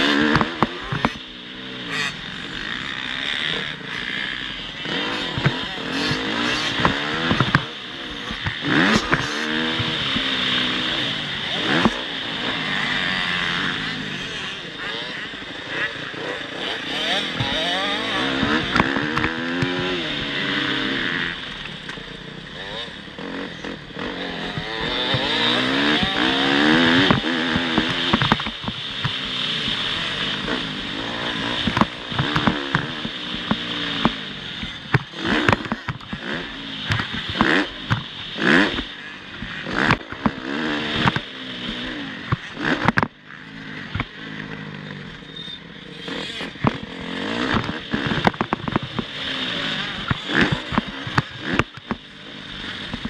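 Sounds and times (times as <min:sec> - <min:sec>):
motocross engines revving: 0:00.0 - 0:53.0
sharp knocks and clattering: 0:24.5 - 0:29.3.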